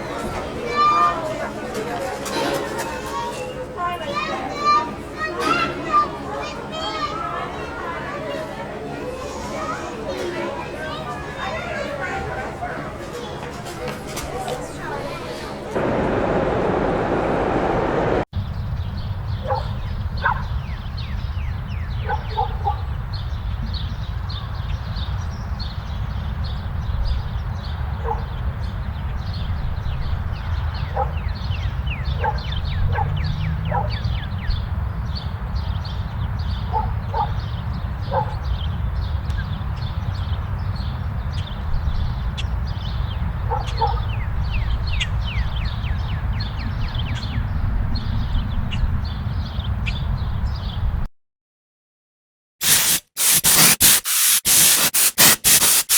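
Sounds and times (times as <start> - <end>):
steady low rumble: 15.8 - 18.3
dogs barking: 19.4 - 20.5, 22.0 - 22.9, 28.0 - 28.4, 30.8 - 31.4, 32.0 - 34.1, 36.7 - 38.5, 43.4 - 44.2
quick high chirps: 52.6 - 55.9.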